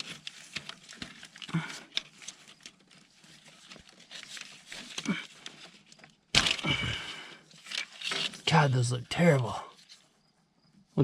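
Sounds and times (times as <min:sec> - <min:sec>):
clatter and rustling: 0:00.0 - 0:08.5.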